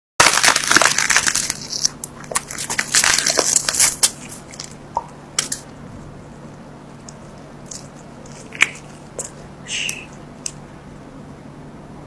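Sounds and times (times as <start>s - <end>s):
crunchy food being chewed: 0.2s - 5.7s, 7.0s - 10.7s.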